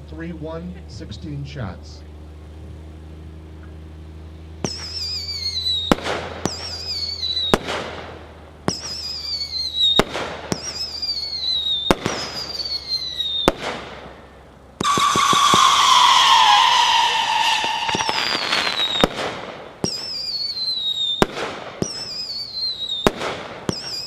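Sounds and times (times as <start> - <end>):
firework bangs: 4.6 - 14.2, 14.8 - 24.0
whistling firework shots: 4.6 - 24.0.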